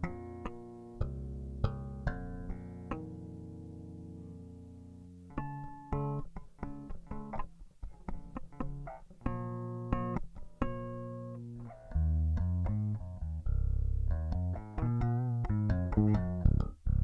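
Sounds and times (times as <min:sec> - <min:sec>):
unamplified electric guitar notes: 0:05.3 - 0:17.0.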